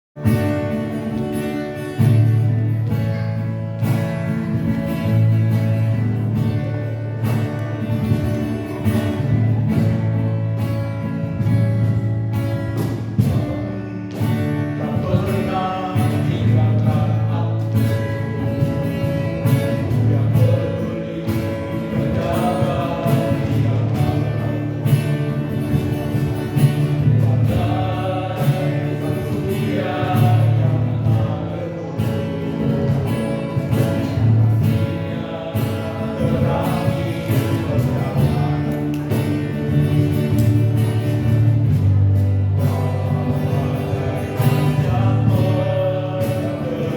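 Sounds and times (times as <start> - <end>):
strummed beat: 0.2 - 46.9
choir singing gospel song: 19.7 - 25.6, 26.8 - 33.0, 34.0 - 40.2, 42.6 - 46.9.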